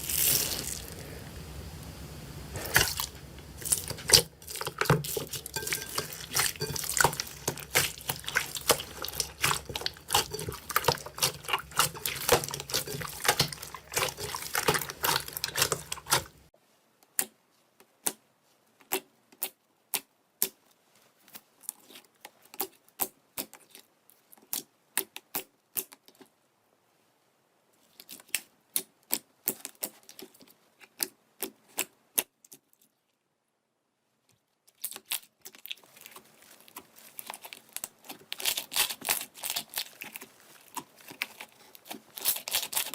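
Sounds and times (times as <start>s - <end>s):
slime crackling and popping: 2.6s - 16.5s, 34.7s - 42.9s.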